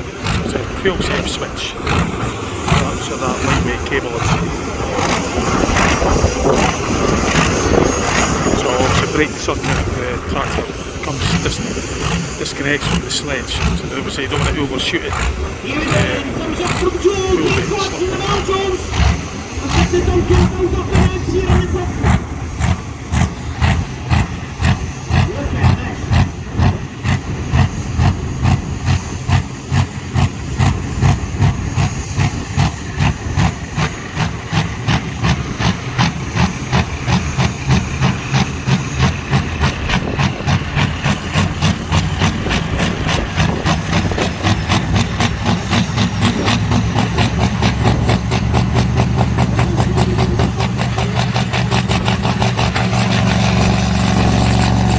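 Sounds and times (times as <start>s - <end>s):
tractor engine idling with lumpy beat: 0.1s - 54.9s.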